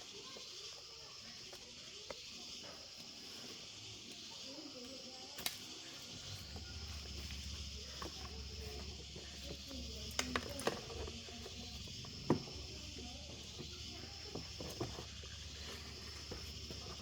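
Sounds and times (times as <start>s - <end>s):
high hiss: 0.0s - 17.0s.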